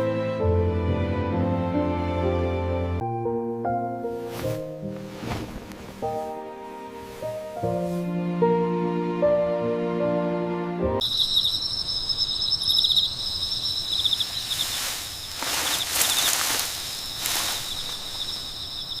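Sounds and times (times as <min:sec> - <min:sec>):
crickets chirping: 0:11.0 - 0:19.0.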